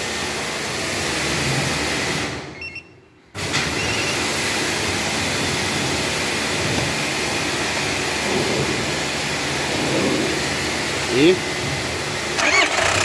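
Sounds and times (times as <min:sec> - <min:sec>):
diesel engine starting and idling: 0:00.0 - 0:13.0
short high beeps: 0:02.6 - 0:03.1.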